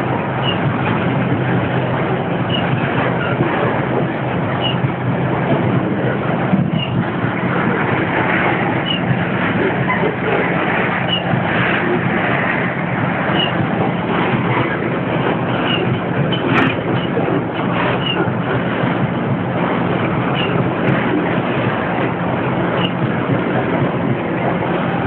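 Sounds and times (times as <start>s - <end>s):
low diesel drone: 0.0s - 25.0s
train wheels rumbling on rails: 0.0s - 25.0s
short high squeak: 0.4s - 0.6s, 4.6s - 4.8s.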